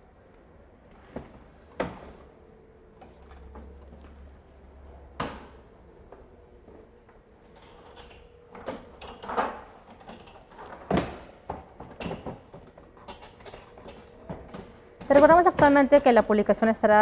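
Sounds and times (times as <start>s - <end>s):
objects knocking and rattling: 7.5s - 17.0s.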